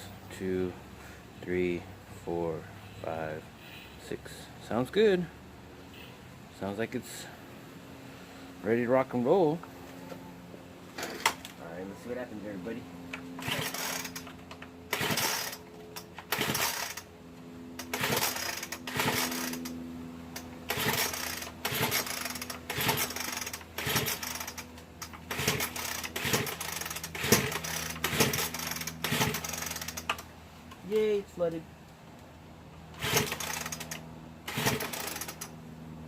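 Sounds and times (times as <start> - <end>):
starter cord being yanked: 20.4 - 30.3, 33.0 - 35.5.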